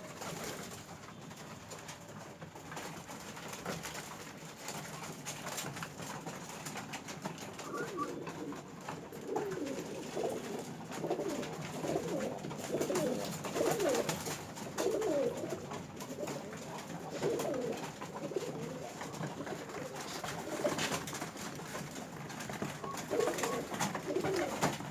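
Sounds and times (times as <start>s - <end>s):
pigeons cooing: 7.1s - 24.9s.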